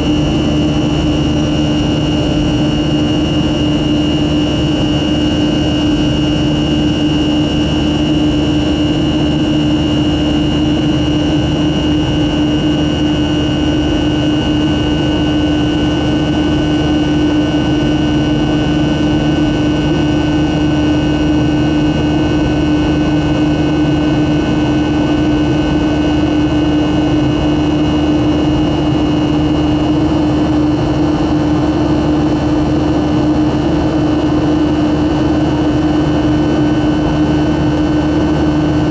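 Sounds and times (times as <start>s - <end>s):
jet engines heard from cabin: 0.0s - 38.9s.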